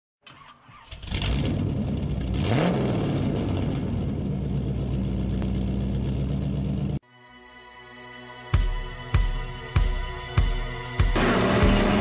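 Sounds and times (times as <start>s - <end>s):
car engine revving and idling: 1.1s - 7.0s, 11.2s - 12.0s.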